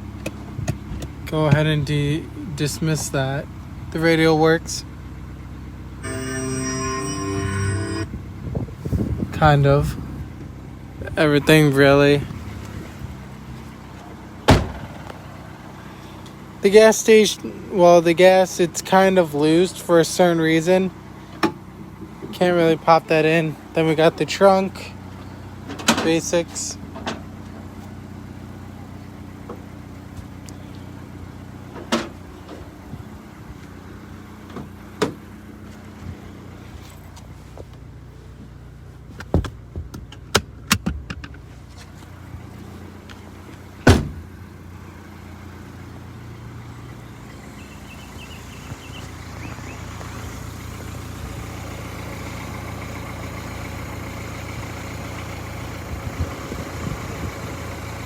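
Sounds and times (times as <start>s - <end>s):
car engine idling: 0.0s - 58.0s
single thump: 43.9s - 44.2s.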